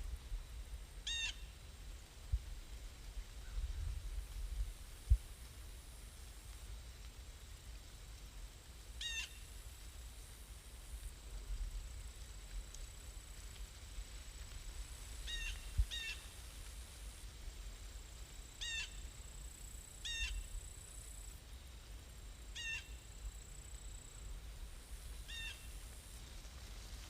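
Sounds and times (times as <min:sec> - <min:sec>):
faint low rumble: 0:00.0 - 0:08.9
bird calling: 0:01.1 - 0:01.4.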